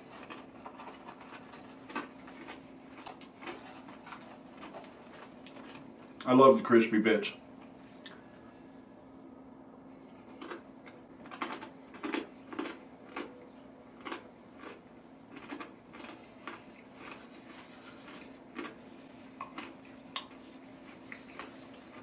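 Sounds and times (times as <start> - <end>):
chewing crispy food: 0.0 - 6.4, 9.9 - 22.0
faint steady hum: 0.0 - 22.0
paper napkin rustling: 17.0 - 19.4.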